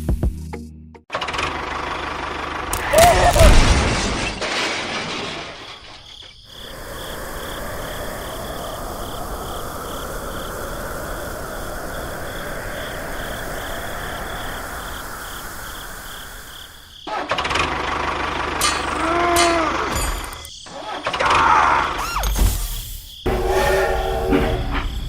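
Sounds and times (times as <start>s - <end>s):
insects chirping: 2.0s - 25.0s
steady hiss: 6.4s - 17.0s.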